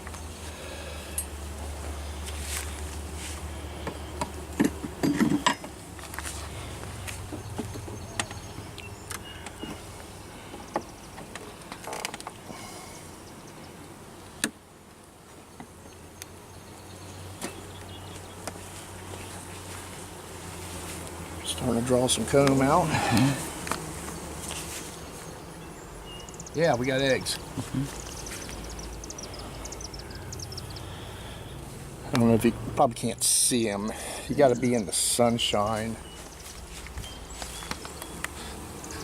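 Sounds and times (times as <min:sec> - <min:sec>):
honey bees buzzing: 0:00.0 - 0:39.0
wooden hive frames knocking: 0:03.8 - 0:06.2, 0:07.2 - 0:12.5.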